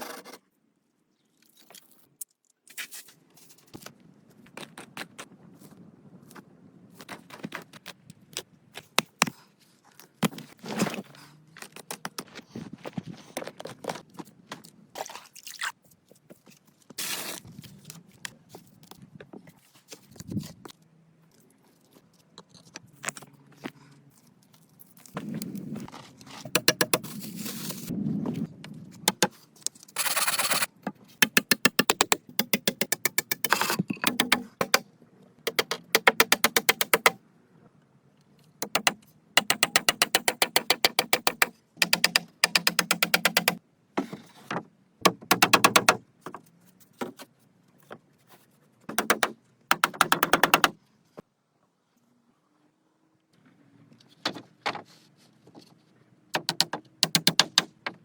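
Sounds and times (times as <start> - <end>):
tools scraping and knocking: 26.4 - 27.8.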